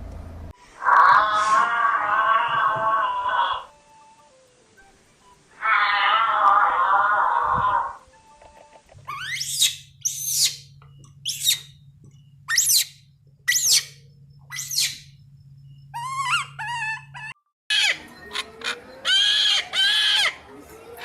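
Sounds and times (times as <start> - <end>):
steady low hum: 0.0 - 0.8, 7.9 - 17.4
bird calling: 9.0 - 20.5.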